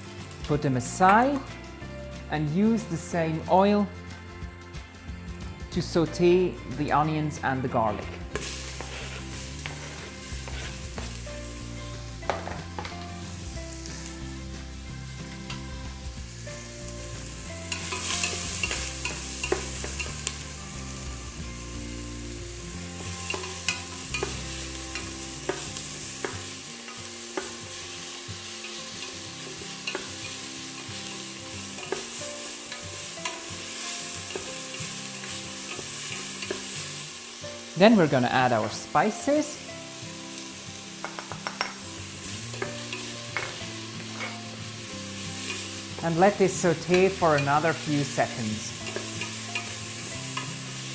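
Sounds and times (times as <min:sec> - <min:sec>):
onions sizzling in hot oil: 0:00.0 - 0:03.5, 0:07.5 - 0:50.9
utensil scraping a pot: 0:08.4 - 0:10.9.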